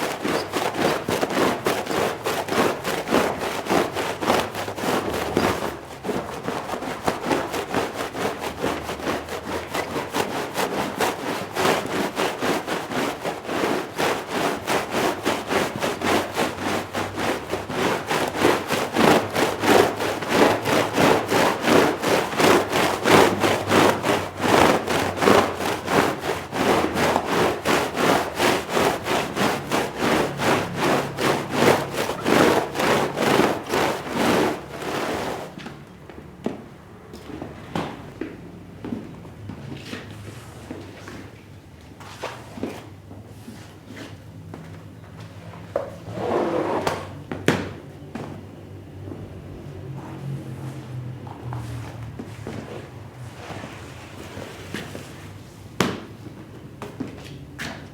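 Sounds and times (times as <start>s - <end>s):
brush scrubbing wet rug: 0.0s - 35.8s, 50.1s - 55.4s.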